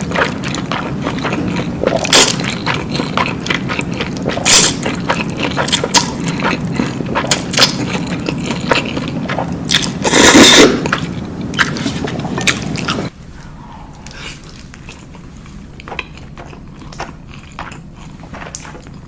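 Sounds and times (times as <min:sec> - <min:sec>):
chewing crunchy food: 0:00.0 - 0:13.1, 0:14.0 - 0:19.0.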